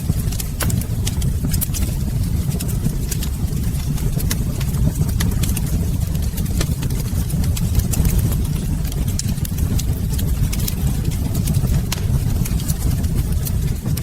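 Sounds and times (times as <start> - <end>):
fire crackles and pops: 0.0 - 14.0
low rumble of flames: 0.0 - 14.0.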